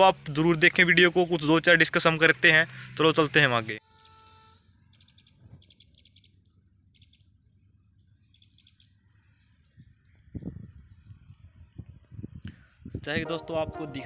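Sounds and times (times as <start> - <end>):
small birds chirping: 4.0 - 12.9.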